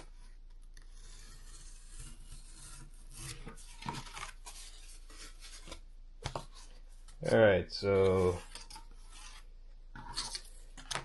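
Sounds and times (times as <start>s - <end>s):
knife rasping through cardboard: 0.7s - 3.6s.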